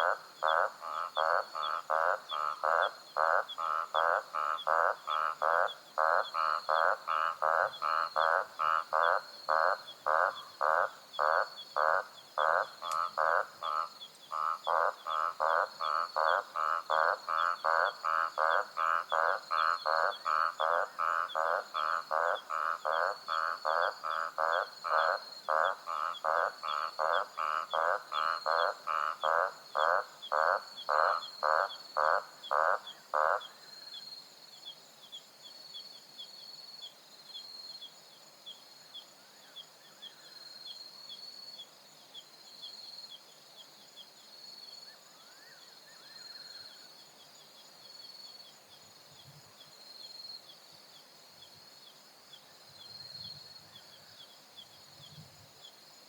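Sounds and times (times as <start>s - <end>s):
frog croaking: 0.0s - 33.7s
insects chirping: 0.0s - 56.0s.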